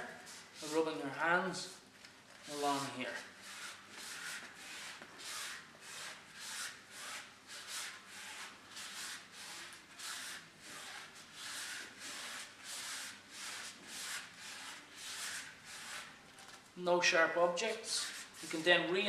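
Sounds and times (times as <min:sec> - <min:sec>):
hands rubbing inside a tyre: 0:03.4 - 0:16.2.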